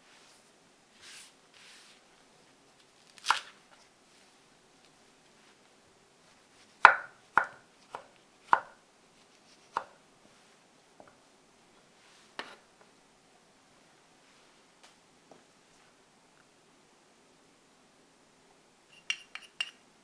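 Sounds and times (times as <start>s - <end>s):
knife chopping on cutting board: 6.8s - 8.8s, 9.7s - 10.0s.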